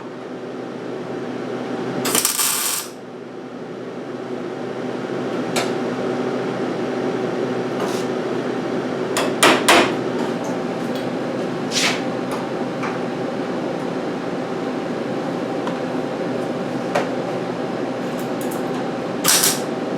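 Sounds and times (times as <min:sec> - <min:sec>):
welder buzzing: 0:02.0 - 0:03.0, 0:19.2 - 0:19.7.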